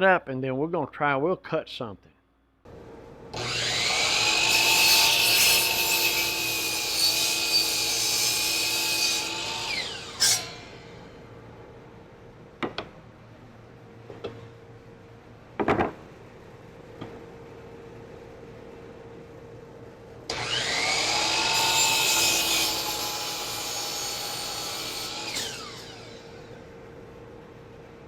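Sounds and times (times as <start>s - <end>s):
miter saw cutting wood: 3.3s - 11.0s, 20.3s - 26.6s.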